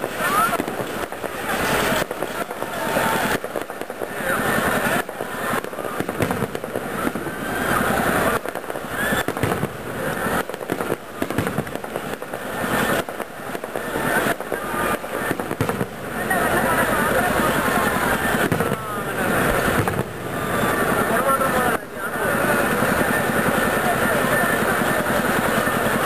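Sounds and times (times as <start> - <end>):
fireworks bangs and crackles: 0.0 - 26.0
voices: 0.0 - 26.0.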